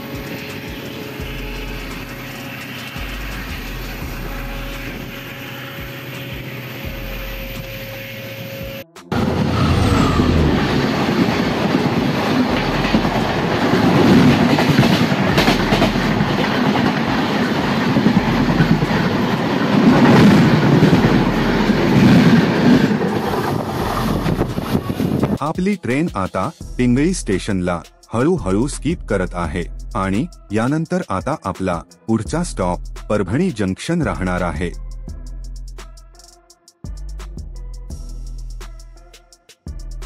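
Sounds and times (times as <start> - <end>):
train wheels rumbling on rails: 0.0 - 7.8, 8.4 - 25.7
clacks at rail joints: 11.2 - 20.3.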